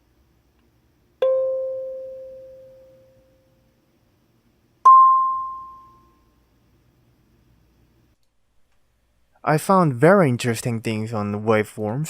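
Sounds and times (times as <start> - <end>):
kalimba notes plucked: 1.2 - 2.9, 4.9 - 6.0.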